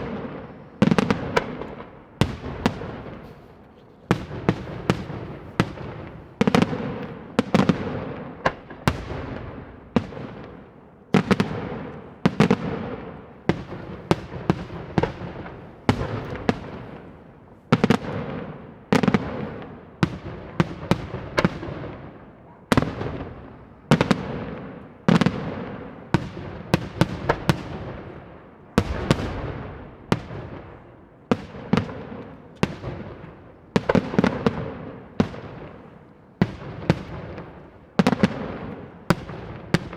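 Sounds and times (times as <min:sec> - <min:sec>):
firework shell explosions: 0:28.8 - 0:30.9.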